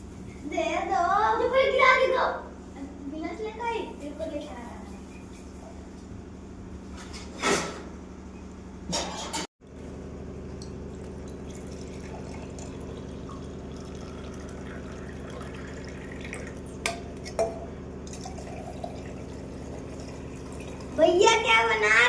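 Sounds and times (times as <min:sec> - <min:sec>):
steady low hum: 0:00.0 - 0:22.0
liquid pouring into a glass: 0:10.6 - 0:17.4, 0:18.0 - 0:21.0.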